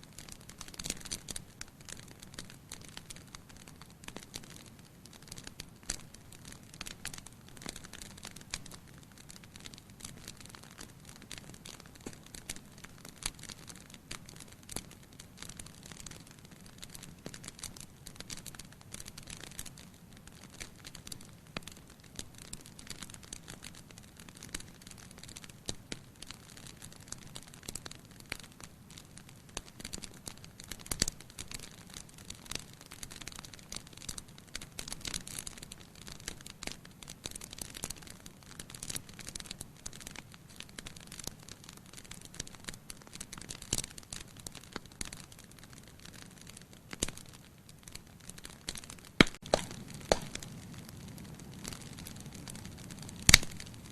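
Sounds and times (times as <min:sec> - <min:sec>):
wood fire crackling: 0:00.0 - 0:53.9.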